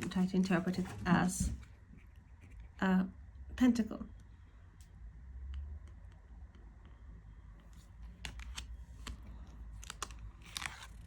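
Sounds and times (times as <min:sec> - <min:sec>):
faint low hum: 0:00.0 - 0:11.0
cards clicking and sliding: 0:08.0 - 0:09.2.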